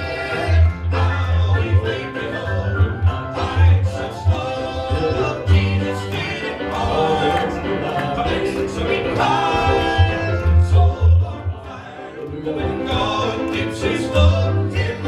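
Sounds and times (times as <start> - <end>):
gospel band with prominent bass: 0.0 - 15.0
voices singing in harmony: 0.0 - 15.0.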